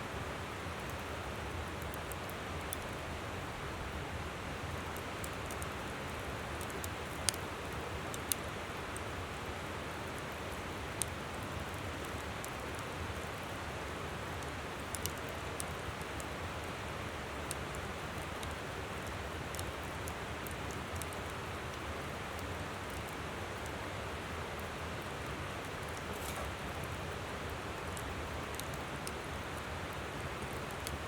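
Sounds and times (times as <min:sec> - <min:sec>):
campfire crackling: 0:00.2 - 0:31.0
fire popping: 0:25.6 - 0:31.0.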